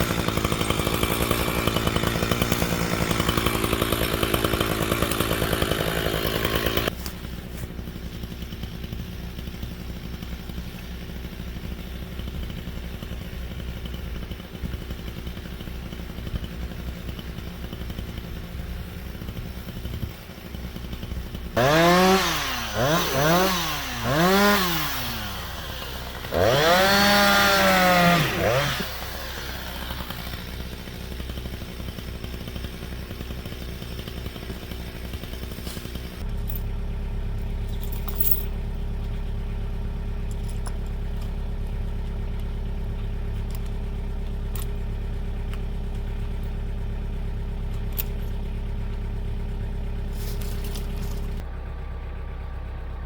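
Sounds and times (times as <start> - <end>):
chainsaw idling and revving: 0.0 - 51.8.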